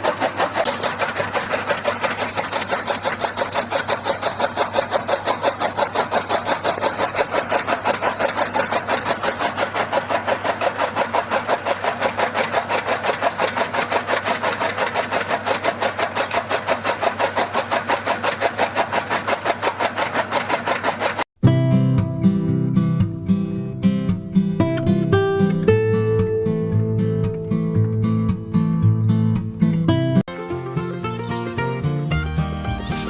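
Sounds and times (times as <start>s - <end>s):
small tractor engine chugging: 0.0s - 21.3s.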